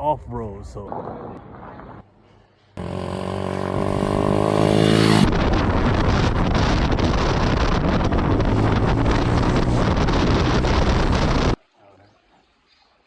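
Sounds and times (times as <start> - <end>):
dirt bike engines running: 2.8 - 5.3
wind buffeting microphone: 3.7 - 11.6.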